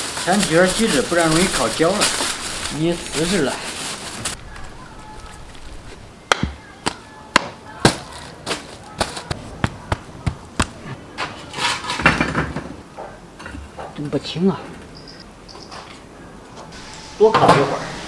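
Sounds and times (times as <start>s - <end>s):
rough handling noise: 0.0s - 7.0s, 7.9s - 12.7s.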